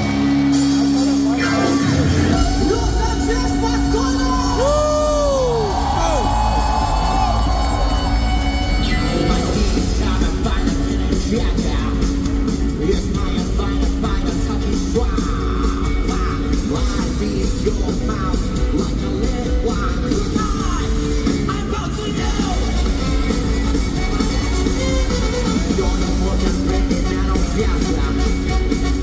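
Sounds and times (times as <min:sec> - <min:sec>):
live band playing funky rock: 0:00.0 - 0:29.0
person singing: 0:04.3 - 0:08.0.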